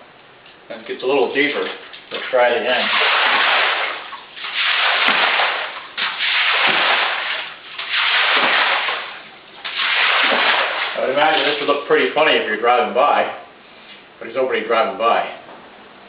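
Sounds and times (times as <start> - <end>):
broom sweeping water: 1.0 - 12.1.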